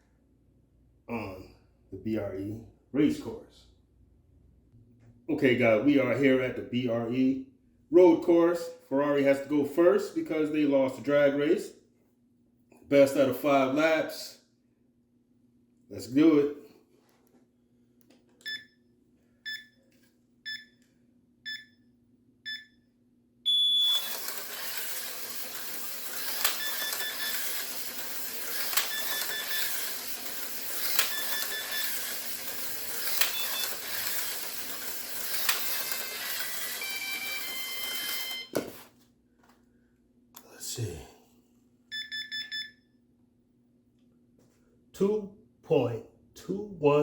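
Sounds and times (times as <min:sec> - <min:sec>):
lap timer beeps: 0:18.4 - 0:18.8, 0:19.4 - 0:19.8, 0:20.5 - 0:20.8, 0:21.4 - 0:21.8, 0:22.4 - 0:22.8, 0:23.5 - 0:24.2, 0:26.2 - 0:27.7, 0:28.5 - 0:38.6, 0:41.9 - 0:42.9
slot car whirring: 0:23.8 - 0:38.9.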